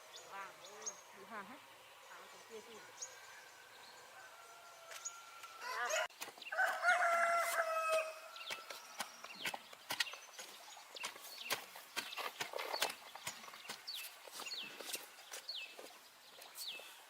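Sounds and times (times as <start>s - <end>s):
rooster crowing: 3.9s - 8.4s.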